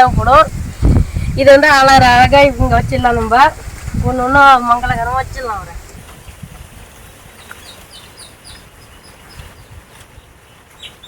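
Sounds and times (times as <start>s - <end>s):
low wind rumble: 0.0s - 10.7s
bird chirping faintly: 6.2s - 11.0s.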